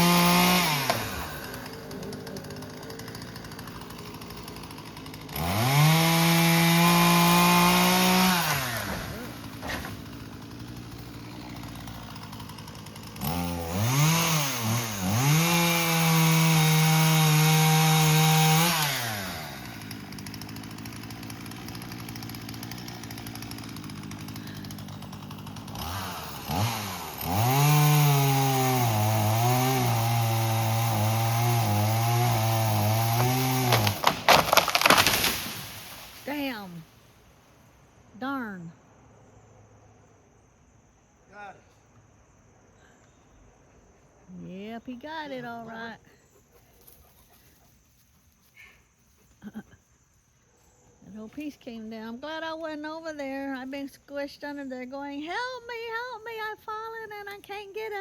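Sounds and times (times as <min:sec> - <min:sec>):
chainsaw cutting limb: 0:00.0 - 0:36.9
chainsaw revving: 0:00.0 - 0:37.0.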